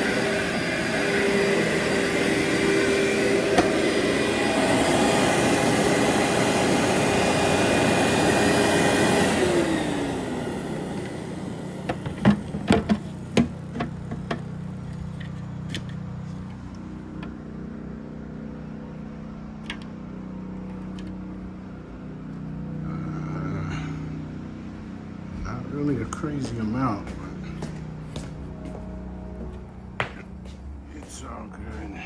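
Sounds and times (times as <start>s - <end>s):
motor winding down whine: 0.0s - 30.4s
vacuum cleaner running: 0.0s - 32.0s
sharp knocks and clicks: 11.9s - 14.4s.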